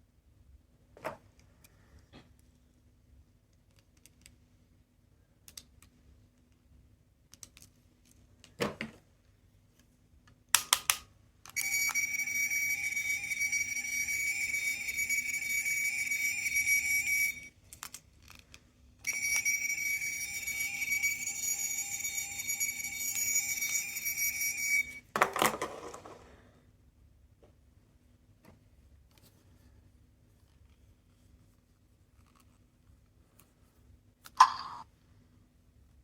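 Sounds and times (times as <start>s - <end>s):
toy high-pitched electronic tone: 11.6s - 17.5s, 19.0s - 25.0s
toy handling clicks and knock: 17.6s - 19.6s.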